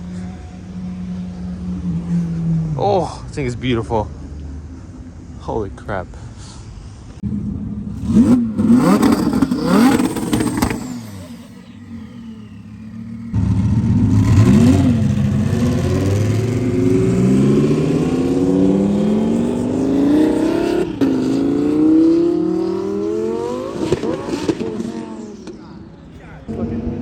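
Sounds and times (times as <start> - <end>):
car engine accelerating hard: 7.2 - 27.0.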